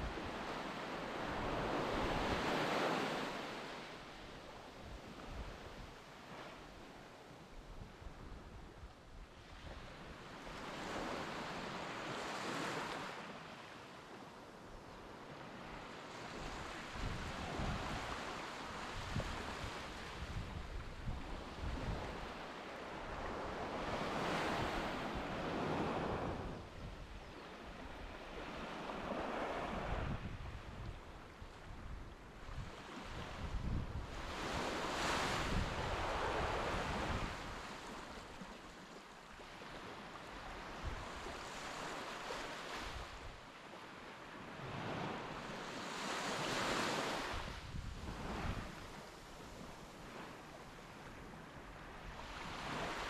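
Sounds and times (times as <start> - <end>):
wind rumbling on microphone: 16.2 - 38.4, 46.5 - 50.4.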